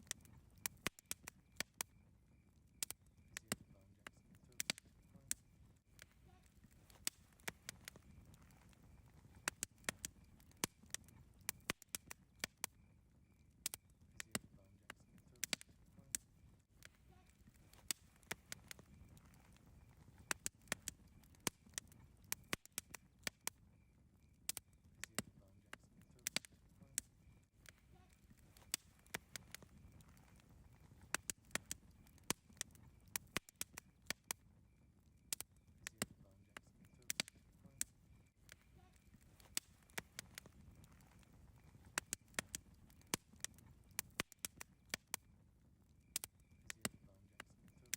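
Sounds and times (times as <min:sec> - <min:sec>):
campfire crackling and popping: 0:00.0 - 0:47.9
low rumble of burning wood: 0:00.0 - 0:47.9.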